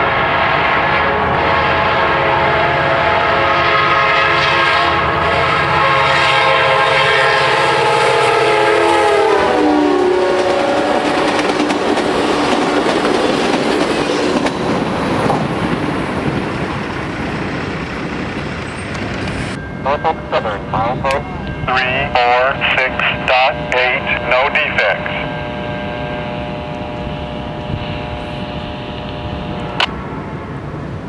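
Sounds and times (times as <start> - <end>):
train horn blast: 0.0 - 12.8, 19.9 - 30.6
train cars clacking on rails: 10.3 - 21.7.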